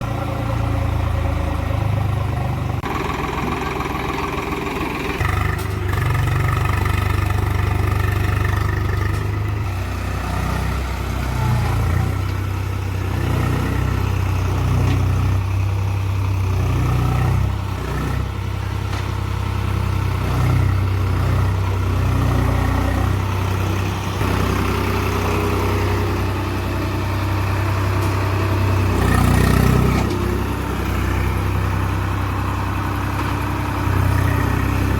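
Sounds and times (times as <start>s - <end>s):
tractor engine running: 0.0s - 34.9s.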